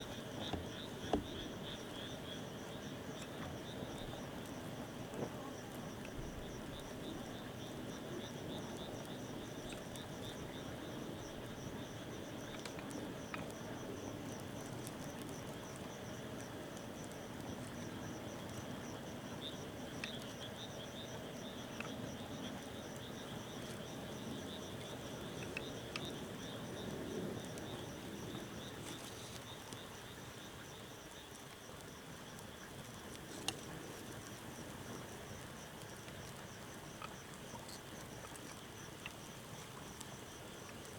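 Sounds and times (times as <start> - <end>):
insects chirping: 0.0 - 40.9
wood fire crackling: 31.1 - 40.9.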